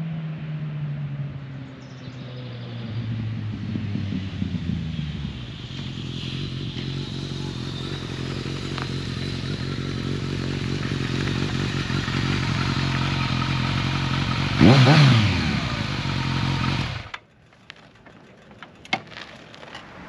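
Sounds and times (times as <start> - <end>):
motorcycle engine idling: 5.6 - 20.0.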